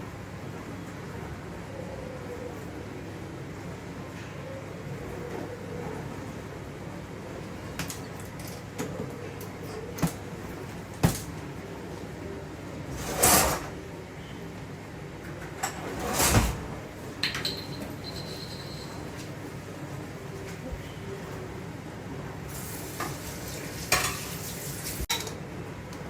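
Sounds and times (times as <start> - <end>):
sliding or scraping sounds: 12.9 - 13.7, 15.7 - 16.7
kitchenware clicks and knocks: 17.2 - 18.6, 25.1 - 25.4.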